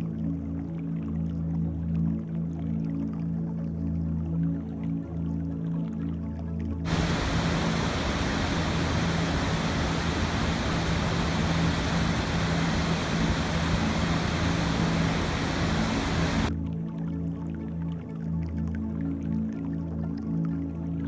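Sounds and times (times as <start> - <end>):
rushing water: 6.9 - 16.5.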